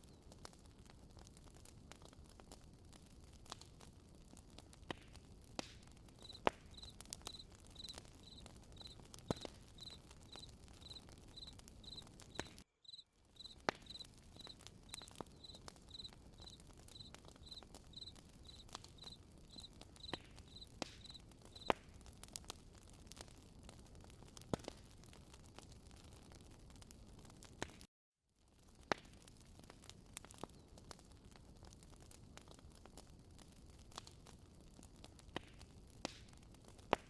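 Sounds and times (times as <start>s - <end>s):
campfire crackling and popping: 0.0s - 37.0s
cricket chirping: 6.2s - 12.0s, 12.8s - 21.7s.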